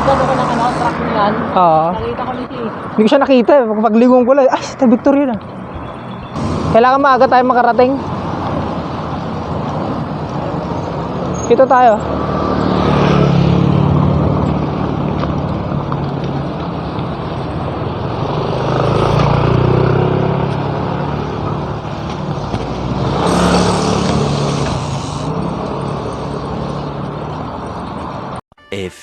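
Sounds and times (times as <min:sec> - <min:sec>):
road noise rumble: 0:00.0 - 0:28.4
vehicles passing: 0:00.0 - 0:28.4
tyres hissing: 0:23.2 - 0:25.9.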